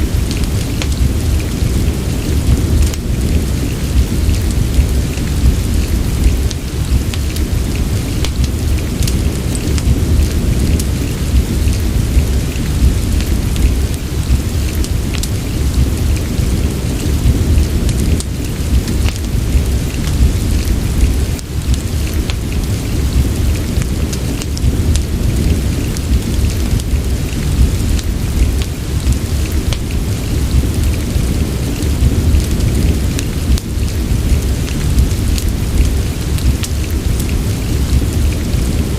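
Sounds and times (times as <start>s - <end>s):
fireplace crackling: 0.0s - 38.9s
low rumble: 0.0s - 38.9s
steady rain: 0.0s - 38.9s.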